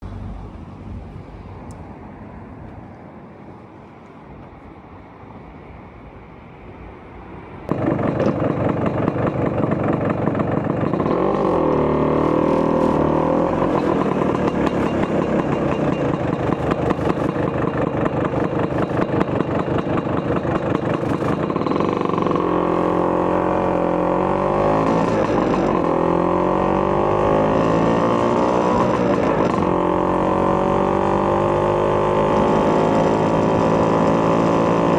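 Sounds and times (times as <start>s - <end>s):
scooter engine idling and revving: 7.7s - 34.9s.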